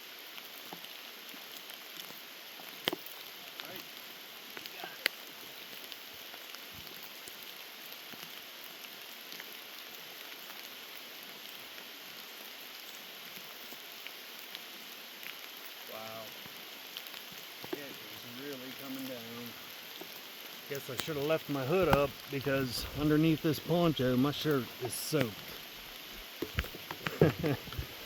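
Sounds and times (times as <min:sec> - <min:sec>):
heavy rain falling: 0:01.0 - 0:28.0.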